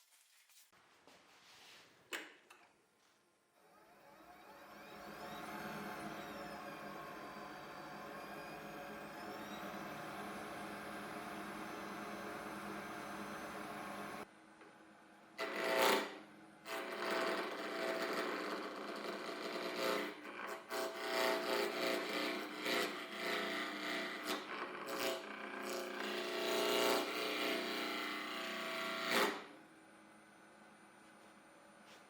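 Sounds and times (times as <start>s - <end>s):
lathe motor tone: 3.7s - 14.2s
lathe tool cutting spinning wood: 3.7s - 14.2s, 15.4s - 29.5s.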